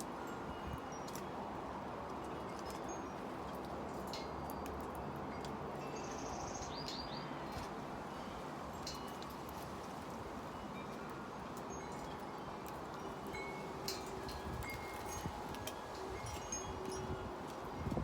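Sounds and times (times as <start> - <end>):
wind: 0.0 - 18.0
songbirds chirping: 5.9 - 9.1.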